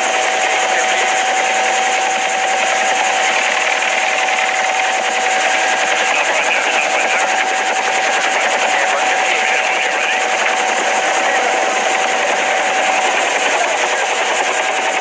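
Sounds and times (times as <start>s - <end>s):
helicopter running: 0.0s - 15.0s.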